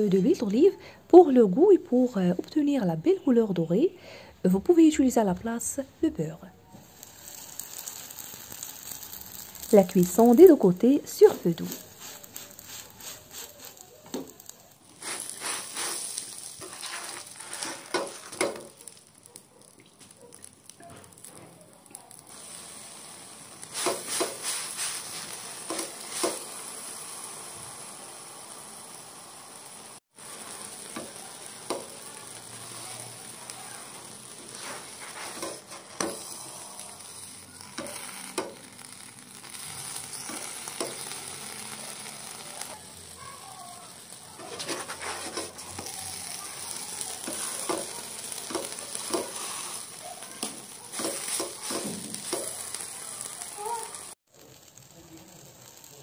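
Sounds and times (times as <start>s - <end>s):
flatbread sizzling in a pan: 6.6s - 56.0s
spatula clicks and scrapes: 11.7s - 21.4s, 23.7s - 26.6s, 33.9s - 42.8s, 44.4s - 52.9s.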